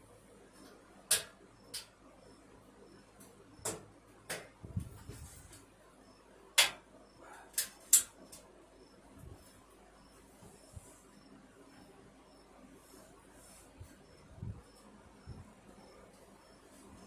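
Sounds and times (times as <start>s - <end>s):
sharp clicks and knocks: 0.6s - 2.0s, 3.6s - 4.6s, 6.6s - 6.8s, 7.5s - 8.5s.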